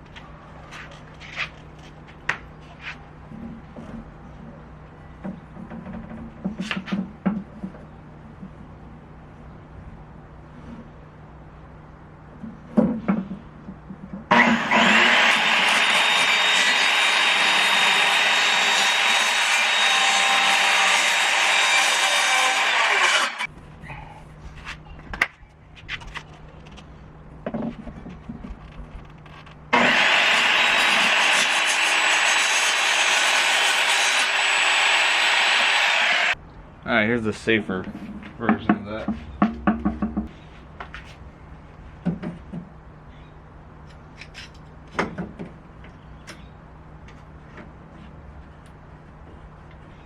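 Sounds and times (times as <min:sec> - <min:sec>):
power saw cutting: 0:14.3 - 0:23.5, 0:29.7 - 0:36.4.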